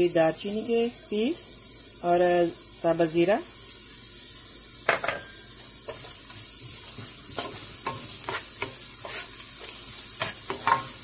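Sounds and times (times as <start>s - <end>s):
onions sizzling in hot oil: 0.0s - 11.0s
wooden spoon scraping a pan: 4.9s - 11.0s.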